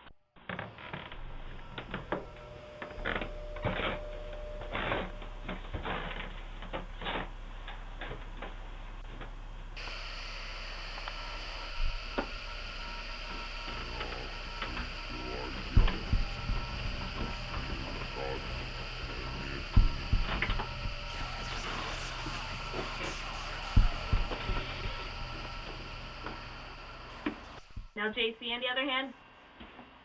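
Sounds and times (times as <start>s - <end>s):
irregular clicks and knocks: 0.8s - 27.9s
steady hiss: 0.8s - 28.0s
low electrical hum: 0.8s - 28.6s.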